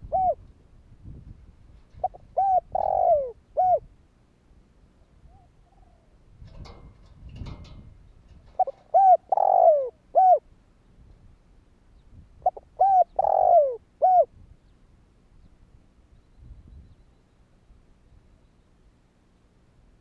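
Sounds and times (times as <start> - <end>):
dove cooing: 0.0 - 0.4, 2.0 - 3.9, 8.5 - 10.5, 12.4 - 14.3.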